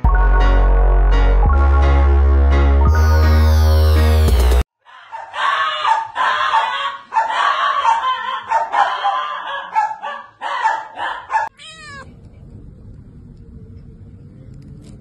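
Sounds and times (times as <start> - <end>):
dog barking: 5.0 - 11.6.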